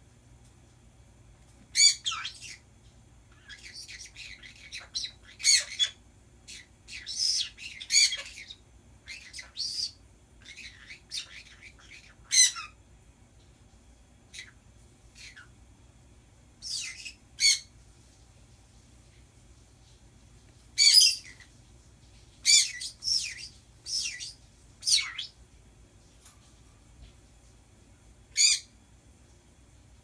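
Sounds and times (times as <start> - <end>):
birds chattering and squawking: 1.7 - 2.7, 3.3 - 12.8, 14.3 - 15.6, 16.6 - 17.8, 20.8 - 21.6, 22.2 - 25.4, 28.3 - 28.8.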